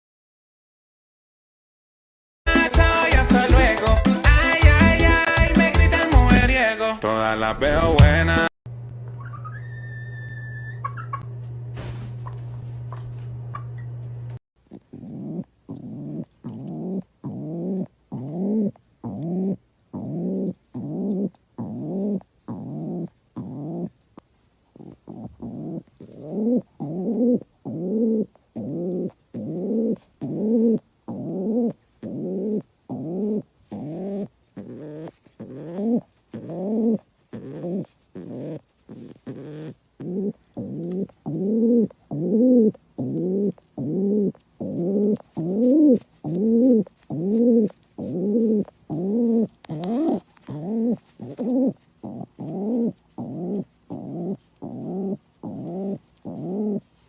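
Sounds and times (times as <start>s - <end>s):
bird calling low arching notes: 9.2s - 11.3s.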